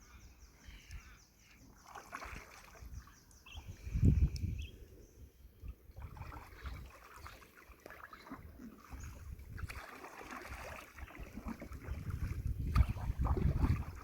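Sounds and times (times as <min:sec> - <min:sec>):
paddles splashing water: 0:01.7 - 0:03.8, 0:05.6 - 0:14.0
water moving along hull: 0:01.7 - 0:04.7, 0:05.7 - 0:14.0.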